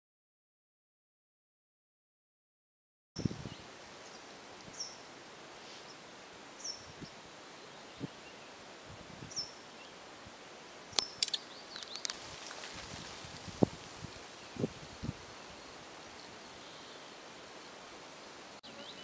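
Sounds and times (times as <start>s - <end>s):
small bird chirping: 6.6s - 8.5s, 9.3s - 10.0s, 10.9s - 13.6s
sharp clicks: 11.0s - 12.6s
rustling: 11.1s - 16.1s.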